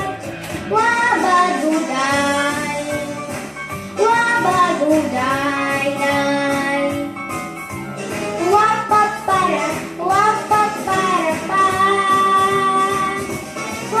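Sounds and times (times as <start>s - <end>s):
girl singing a pop song: 0.0s - 7.4s, 8.1s - 14.0s
recorded backing track: 0.0s - 14.0s.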